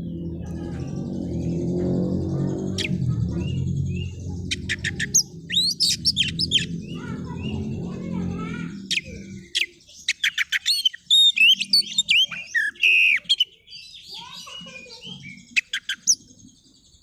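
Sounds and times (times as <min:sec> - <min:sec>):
songbird whistles and chirps: 0:00.1 - 0:07.6, 0:08.8 - 0:17.0
low background murmur: 0:06.6 - 0:09.8.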